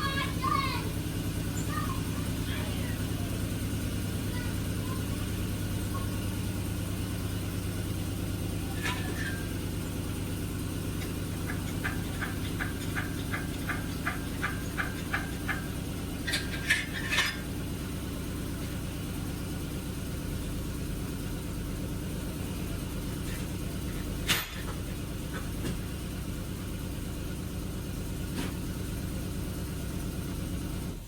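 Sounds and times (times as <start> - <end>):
low mechanical hum: 0.0 - 31.0.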